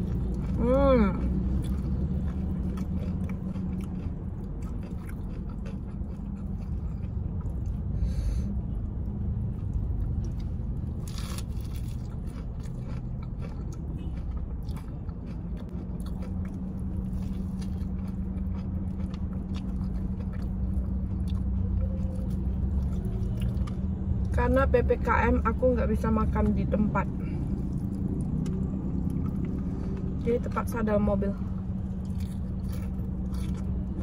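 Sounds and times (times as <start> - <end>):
car hum: 0.0 - 34.0
chewing and crunching fried chicken: 0.0 - 34.0.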